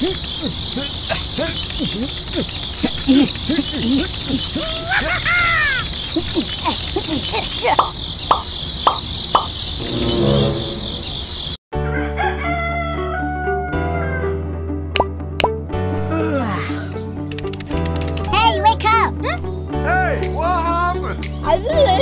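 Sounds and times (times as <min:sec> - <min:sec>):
frogs croaking: 0:00.0 - 0:11.6
insects chirping: 0:00.0 - 0:11.6
background music: 0:09.8 - 0:22.0
rooster crowing: 0:11.8 - 0:14.4.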